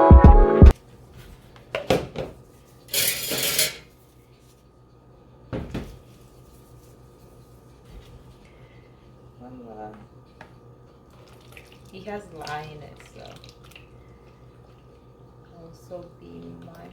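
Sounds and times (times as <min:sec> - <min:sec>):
dishes and utensils clinking: 0:02.9 - 0:03.9.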